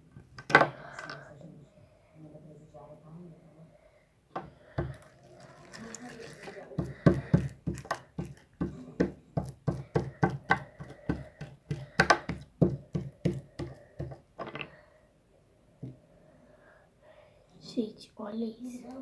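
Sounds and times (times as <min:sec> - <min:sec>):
slime squelching and popping: 0:04.8 - 0:08.7.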